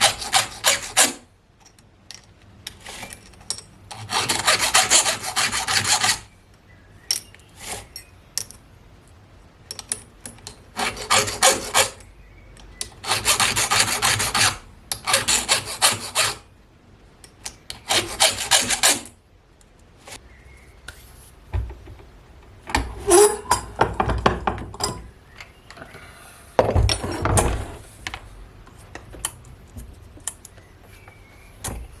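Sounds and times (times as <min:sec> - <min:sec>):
file rasping on chain: 0:00.0 - 0:01.2, 0:03.9 - 0:06.3, 0:10.8 - 0:12.0, 0:13.0 - 0:16.5, 0:17.7 - 0:19.1.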